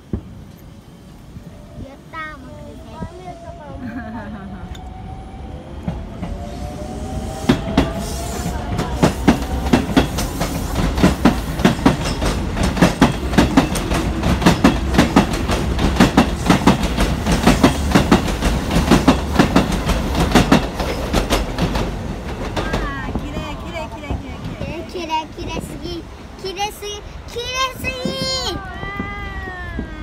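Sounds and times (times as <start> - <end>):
train rumble: 0.0 - 30.0
wheels clacking over rail joints: 8.7 - 25.8.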